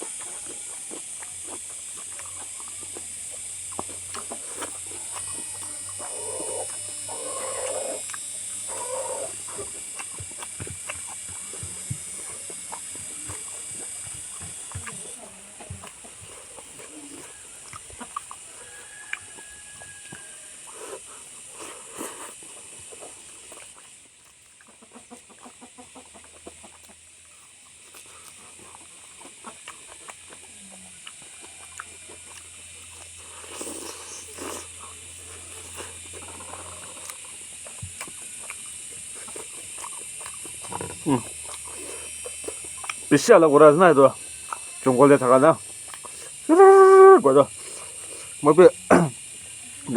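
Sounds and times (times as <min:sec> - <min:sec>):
person chewing food: 0:00.0 - 0:49.9
steady high hiss: 0:32.5 - 0:49.9.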